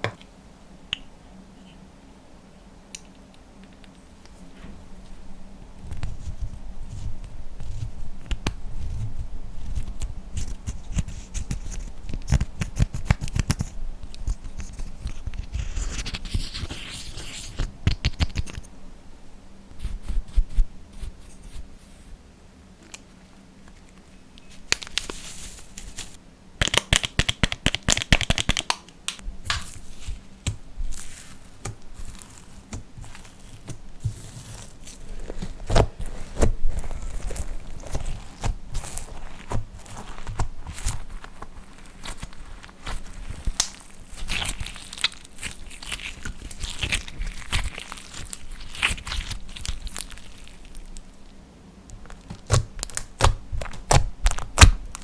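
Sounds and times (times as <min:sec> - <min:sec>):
slime kneaded by hand: 0:24.6 - 0:50.9, 0:51.9 - 0:55.0
sticky clicking and crackling: 0:26.6 - 0:29.8.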